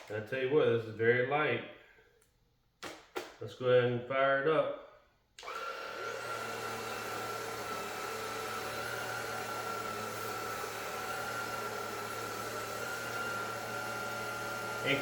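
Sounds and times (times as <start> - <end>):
vacuum motor whirring: 5.4 - 15.0.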